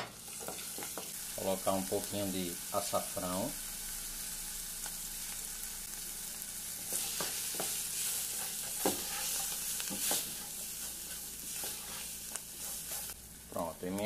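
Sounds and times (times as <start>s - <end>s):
vegetables sizzling in oil: 0.0s - 14.0s
spatula knocking and scraping pot: 6.9s - 10.5s.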